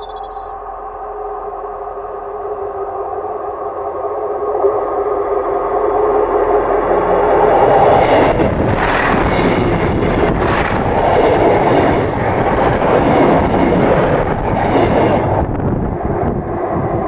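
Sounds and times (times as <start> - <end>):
train rumbling overhead: 0.0 - 17.0.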